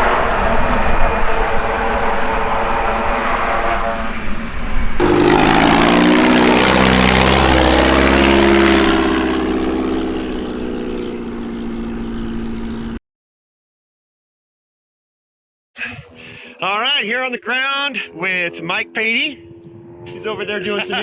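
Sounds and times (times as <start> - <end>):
propeller airplane engine droning: 0.0 - 13.0, 17.7 - 21.0
propeller airplane flying past: 0.0 - 13.0, 17.6 - 21.0.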